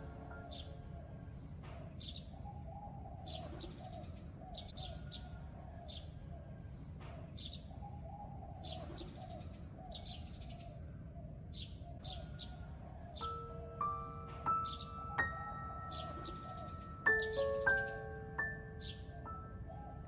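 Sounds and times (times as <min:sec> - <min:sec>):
birds chirping: 0:00.0 - 0:20.0
bird call of arching notes: 0:13.2 - 0:20.0.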